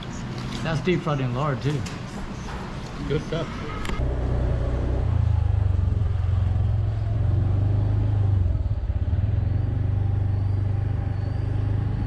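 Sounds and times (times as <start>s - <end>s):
vehicle engine rumbling: 2.0s - 12.0s.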